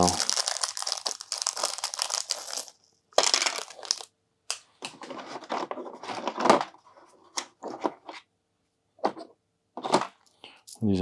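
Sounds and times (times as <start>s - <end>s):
plastic bags crinkling: 0.0s - 4.1s.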